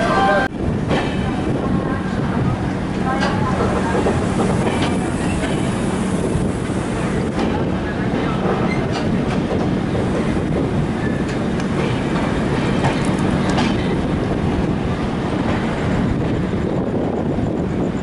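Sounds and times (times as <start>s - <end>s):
train rumbling on track: 0.0s - 18.0s
wheels clacking over rail joints: 7.3s - 14.8s.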